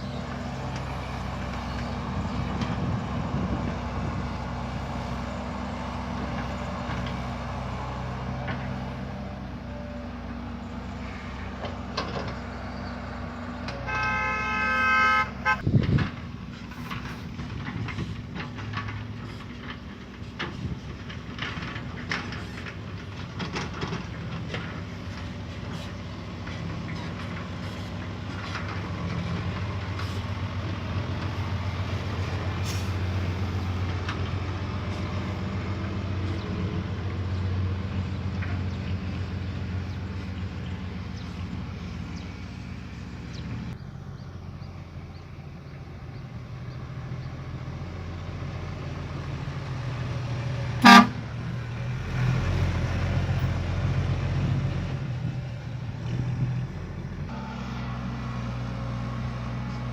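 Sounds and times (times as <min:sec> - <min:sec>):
diesel machinery running: 0:00.0 - 0:59.9
short loud horn toot: 0:13.8 - 0:15.6, 0:50.8 - 0:51.2.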